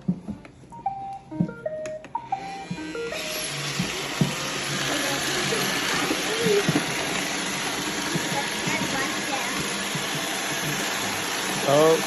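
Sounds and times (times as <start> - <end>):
electronic start-up beeps: 0.8 - 3.4
vacuum motor whirring: 2.1 - 12.0.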